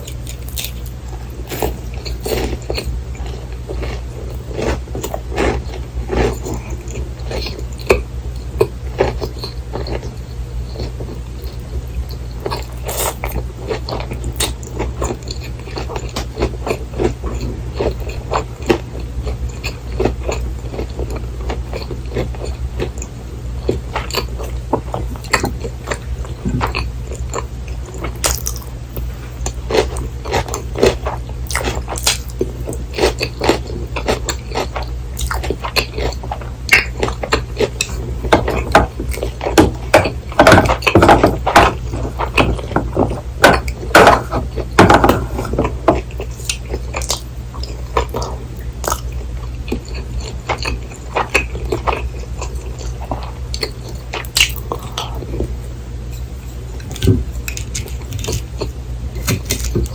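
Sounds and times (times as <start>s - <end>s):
chewing food: 0.0s - 59.9s
steady low hum: 0.0s - 59.9s.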